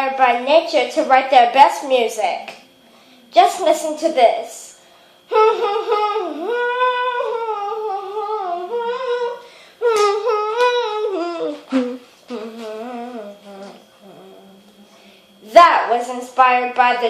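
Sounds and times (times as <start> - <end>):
person humming a melody: 5.3 - 15.0.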